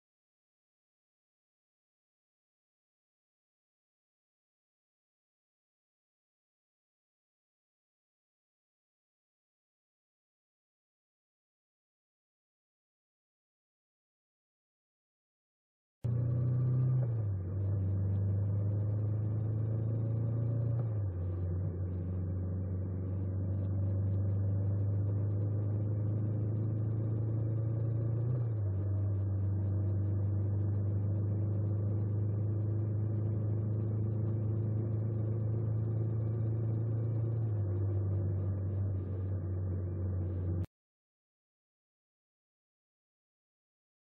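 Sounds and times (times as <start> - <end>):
motorcycle engine running: 17.4 - 40.6.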